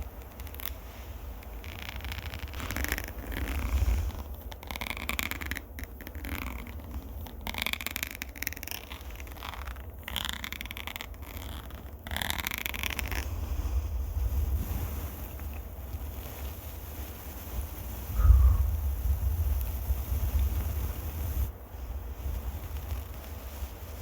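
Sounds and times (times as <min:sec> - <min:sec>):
low rumble of mic handling: 0:00.0 - 0:05.8, 0:12.8 - 0:24.0
scratching on microphone: 0:00.0 - 0:24.0.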